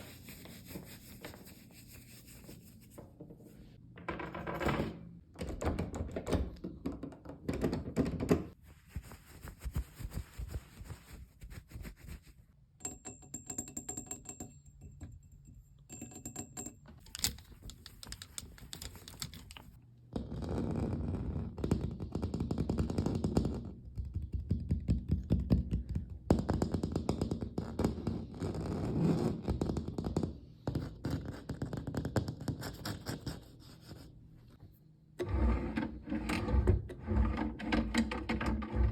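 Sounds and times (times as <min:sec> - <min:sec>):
fingers tapping and scratching objects: 0:15.9 - 0:20.3, 0:29.4 - 0:34.0.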